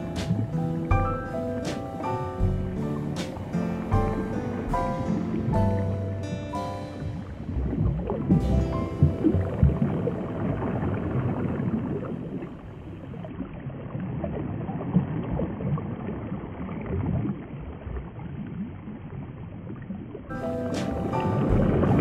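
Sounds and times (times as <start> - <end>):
musical notes: 0.0 - 11.5, 20.3 - 22.0
water rushing and sloshing: 0.0 - 22.0.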